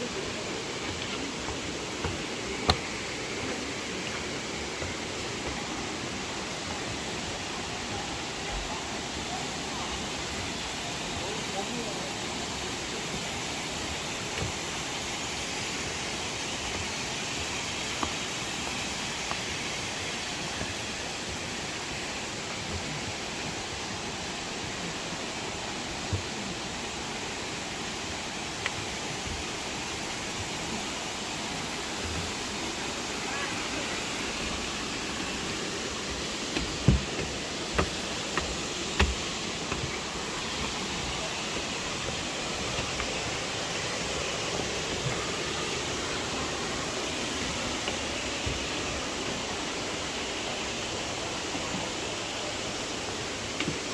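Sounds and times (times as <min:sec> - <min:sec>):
waterfall rushing: 0:00.0 - 0:53.9
short sharp knocks: 0:36.6 - 0:39.9.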